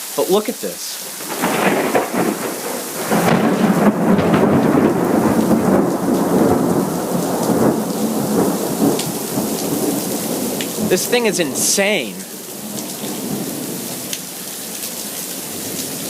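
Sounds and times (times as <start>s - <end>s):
steady rain: 0.0s - 16.0s
thunder rumbling: 1.2s - 14.3s.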